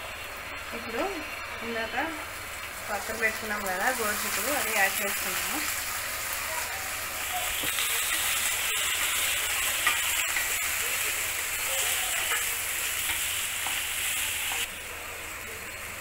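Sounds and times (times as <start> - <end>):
beans sizzling in hot oil: 0.0 - 16.0.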